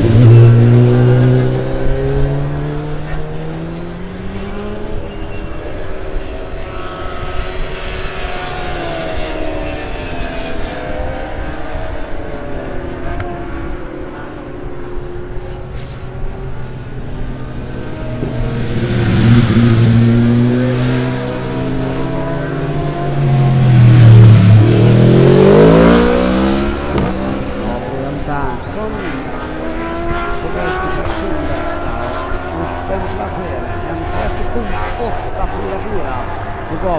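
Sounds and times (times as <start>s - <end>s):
racing motorcycle engines: 0.0s - 36.9s.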